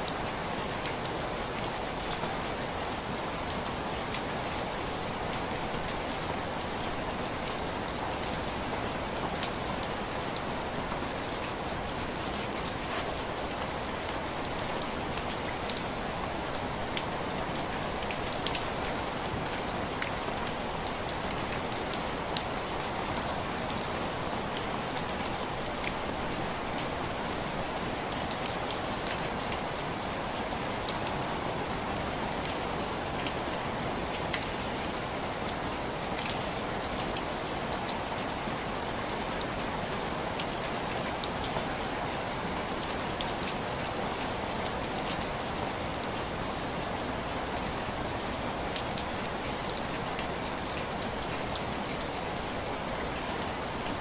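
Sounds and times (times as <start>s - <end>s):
rain on window glass: 0.0s - 54.0s.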